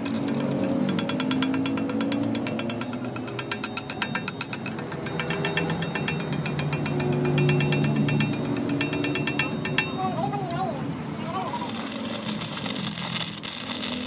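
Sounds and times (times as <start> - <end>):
low hum: 0.0 - 13.8
machinery metallic ticking: 0.0 - 14.0.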